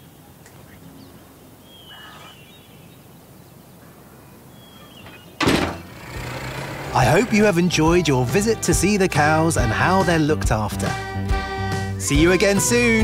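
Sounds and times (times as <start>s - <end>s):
faint farmyard ambience: 0.0s - 8.9s
high bird chirps: 0.7s - 5.4s.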